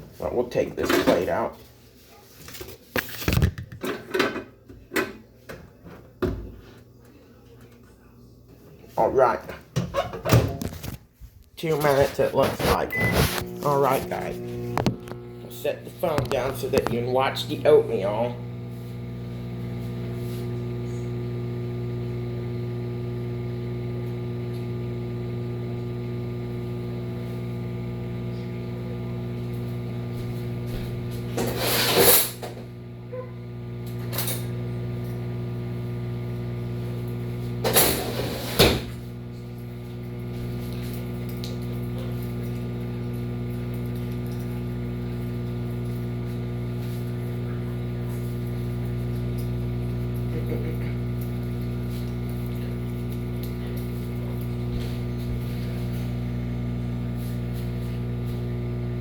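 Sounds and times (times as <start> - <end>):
microwave oven humming: 12.7 - 59.0.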